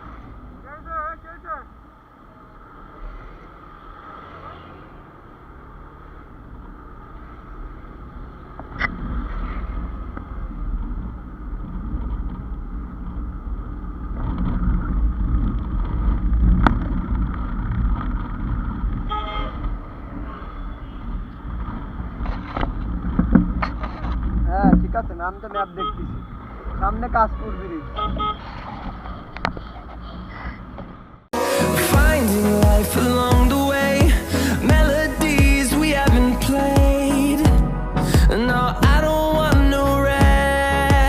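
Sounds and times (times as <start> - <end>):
motorcycle engine and road rumble: 0.0 - 41.0
vehicle horn honk: 19.1 - 19.6, 25.4 - 26.3, 27.2 - 28.5.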